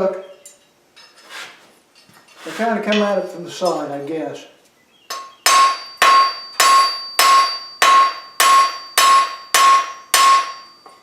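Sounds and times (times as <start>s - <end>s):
hammer striking steel rivet: 5.1s - 11.0s.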